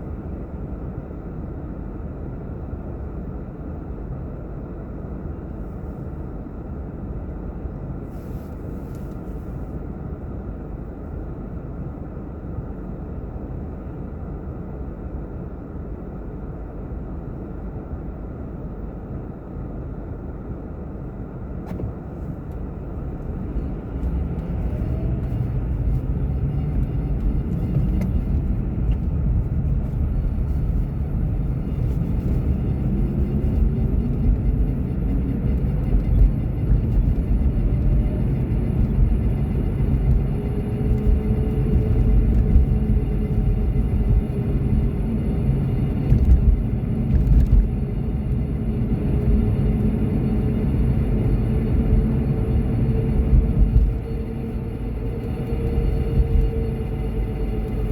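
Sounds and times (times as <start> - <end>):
car interior road rumble: 0.0 - 57.9.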